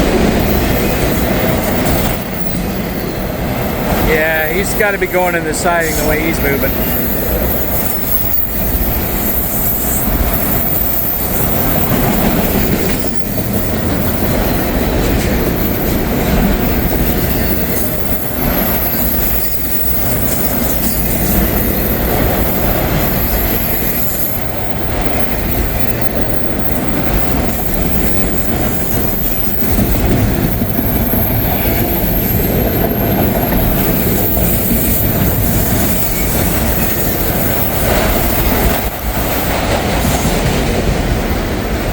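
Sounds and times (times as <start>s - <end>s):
train wheels clacking on rails: 0.0s - 41.9s
high-pitched wheel squeal: 5.8s - 14.8s, 15.7s - 38.9s.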